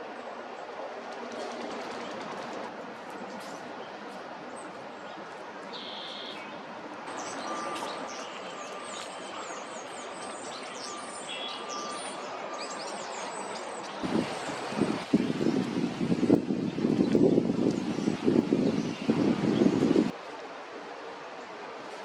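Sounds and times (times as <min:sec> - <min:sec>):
background noise: 0:00.0 - 0:22.0
songbirds chirping: 0:02.9 - 0:20.2.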